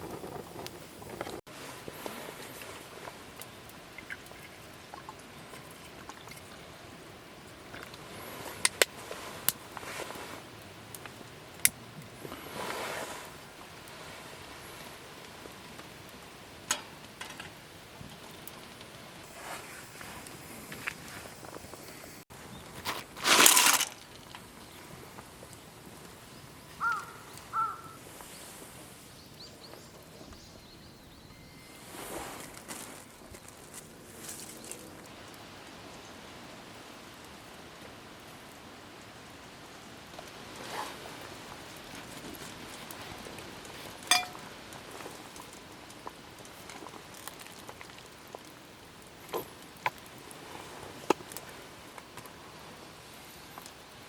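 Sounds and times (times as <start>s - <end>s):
wood fire crackling: 0.0s - 30.6s, 32.4s - 54.0s
outdoor ambience: 0.0s - 54.0s
steady hiss: 6.6s - 54.0s
rustling noise: 7.9s - 10.6s, 12.2s - 15.6s, 17.0s - 25.4s, 31.8s - 35.1s.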